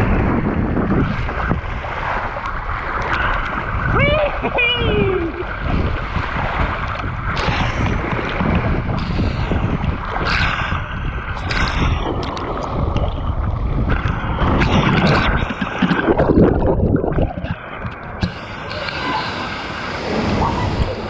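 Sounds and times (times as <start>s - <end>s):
sharp knocks and splashes: 0.0s - 4.0s, 5.4s - 19.1s
wind buffeting microphone: 0.0s - 21.0s
water rushing down slide: 11.2s - 21.0s.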